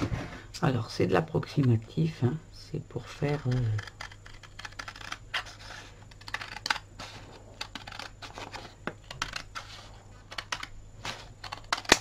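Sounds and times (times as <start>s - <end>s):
scissors snipping paper: 3.3s - 5.5s.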